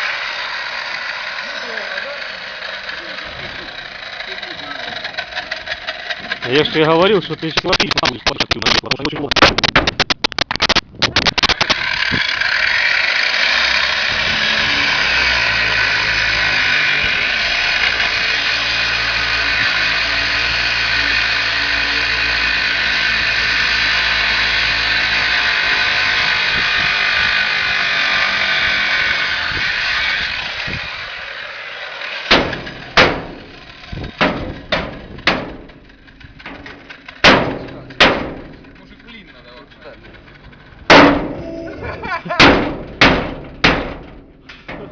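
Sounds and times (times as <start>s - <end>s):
angle grinder cutting metal: 0.0s - 44.0s
knocks on metal: 32.3s - 33.4s, 34.0s - 38.9s, 40.9s - 41.4s, 42.4s - 44.9s.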